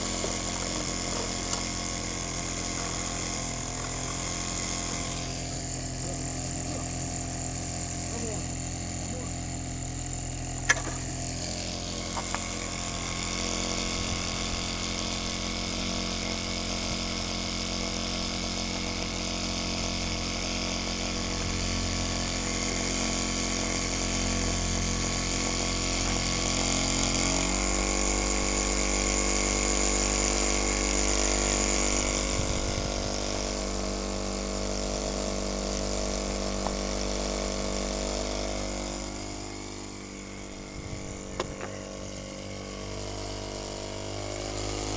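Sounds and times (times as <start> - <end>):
engine mechanical whir: 0.0 - 44.9
sharp click: 10.6 - 11.1, 41.3 - 41.8.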